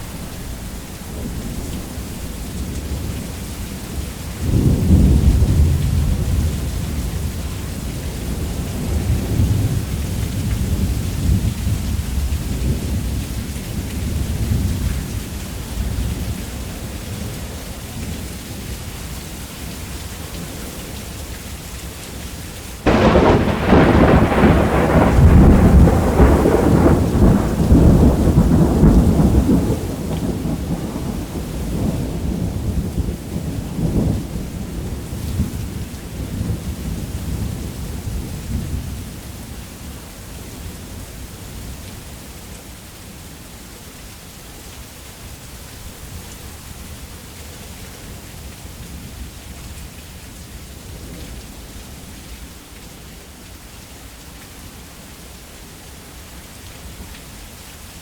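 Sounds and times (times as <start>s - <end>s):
thunder rumbling: 0.0s - 13.3s, 22.8s - 39.1s
heavy rain: 0.0s - 58.0s
close thunderclap: 4.4s - 7.4s, 22.9s - 39.0s.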